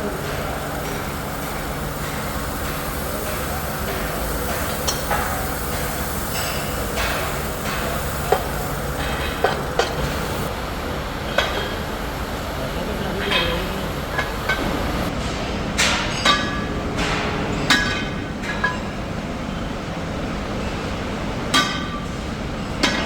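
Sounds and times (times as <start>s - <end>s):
workshop machinery rumbling: 0.0s - 23.0s
sharp metallic clanks: 0.1s - 10.5s.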